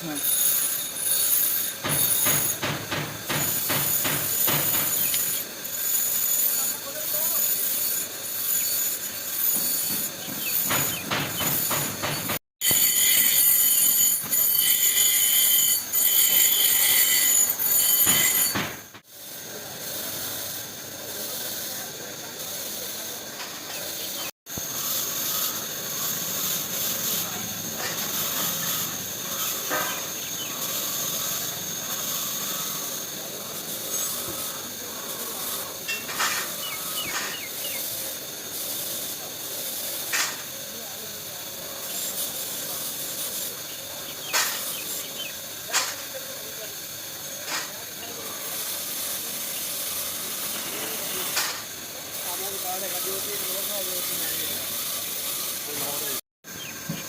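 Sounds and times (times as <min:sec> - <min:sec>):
loud hissing with whistle: 0:19.2 - 0:57.0.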